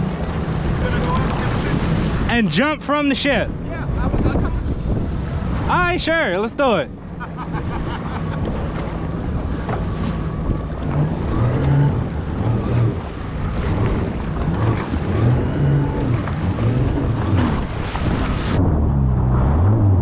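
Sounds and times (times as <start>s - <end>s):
jet ski engine revving: 0.0s - 2.3s, 6.9s - 20.0s
wind buffeting microphone: 0.0s - 6.1s, 8.3s - 20.0s
water rushing and splashing: 0.0s - 20.0s.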